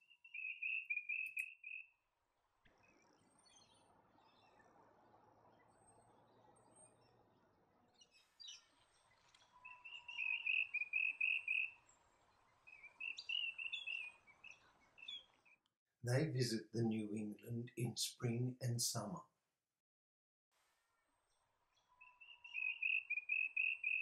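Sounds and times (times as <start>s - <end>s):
bee-eaters calling with rolling notes: 0.1s - 1.8s, 9.5s - 11.8s, 12.7s - 15.2s, 16.1s - 19.1s, 22.0s - 24.0s.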